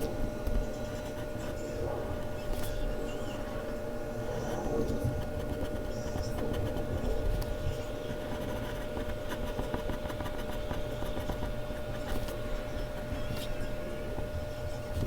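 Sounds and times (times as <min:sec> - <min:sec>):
pencil scratching on paper: 0:04.4 - 0:13.5.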